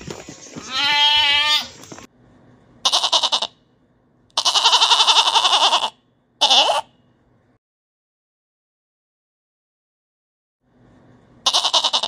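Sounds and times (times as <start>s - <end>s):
goat bleating: 0.6s - 1.8s, 2.8s - 3.6s, 4.4s - 6.9s, 11.4s - 12.0s.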